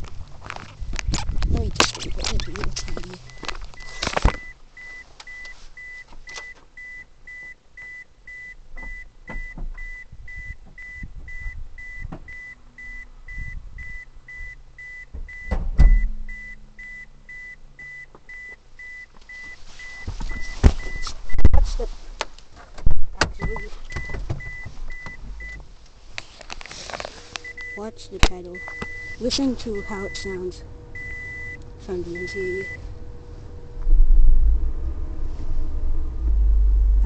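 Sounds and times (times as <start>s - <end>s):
short high warning beeps: 9.8s - 21.5s, 27.4s - 32.8s
brief low hum: 28.5s - 37.0s.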